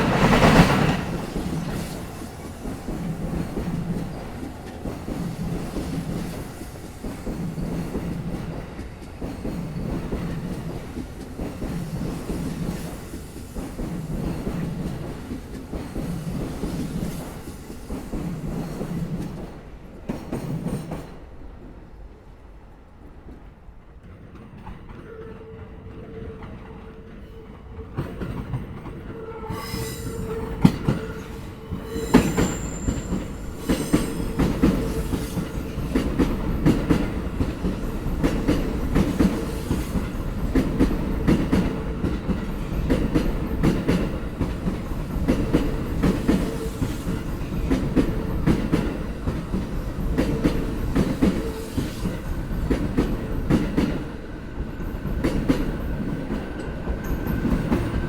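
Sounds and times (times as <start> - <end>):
steady train whine: 0.0 - 58.0
train wheels clacking on rail joints: 30.0 - 54.1.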